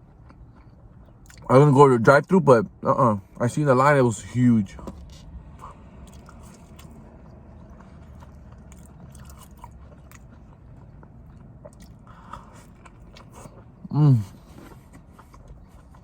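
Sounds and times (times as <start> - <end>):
person chewing food: 0.0 - 1.5, 4.8 - 16.0.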